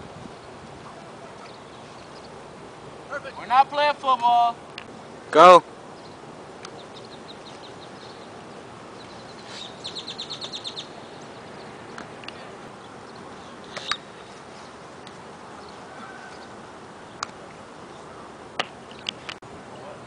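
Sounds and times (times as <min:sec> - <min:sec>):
outdoor background noise: 0:00.0 - 0:20.0
bird chirping: 0:00.4 - 0:02.5, 0:05.9 - 0:18.3.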